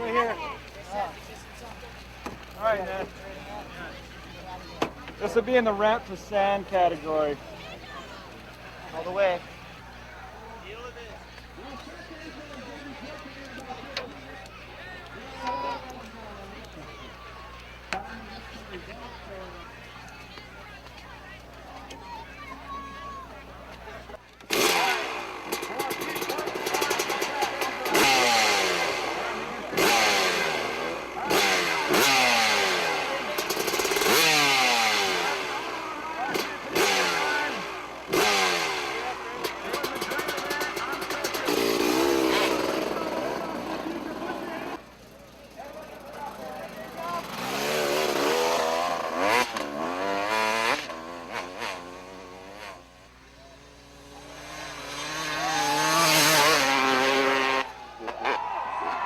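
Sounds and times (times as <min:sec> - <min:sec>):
motocross bike engine revving: 0:00.0 - 0:14.5, 0:24.0 - 0:59.0.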